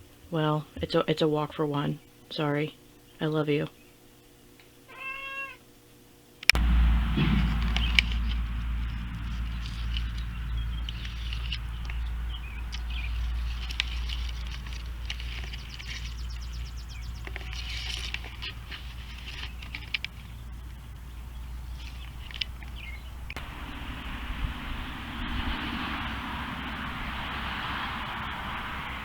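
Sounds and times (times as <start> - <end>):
steady low rumble: 6.5 - 29.0
small birds chirping: 6.6 - 23.4
bird trill: 6.7 - 23.3.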